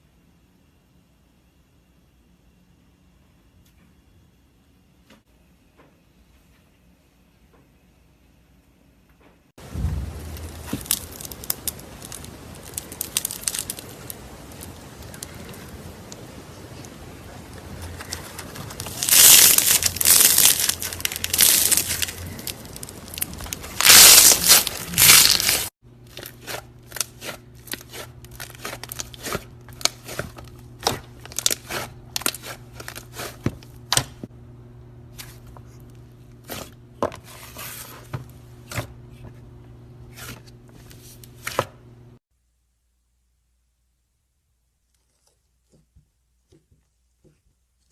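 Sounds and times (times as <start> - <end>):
faint steady hum: 0.0 - 47.9
slime crackling when squeezed: 9.9 - 15.7, 17.8 - 26.3.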